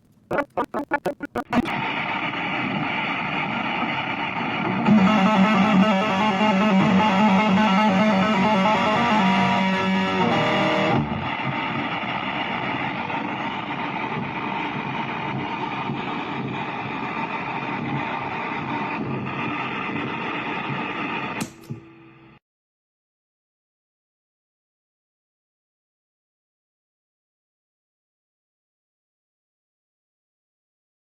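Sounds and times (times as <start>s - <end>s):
electric guitar through amplifier: 0.0s - 1.8s, 4.6s - 11.4s.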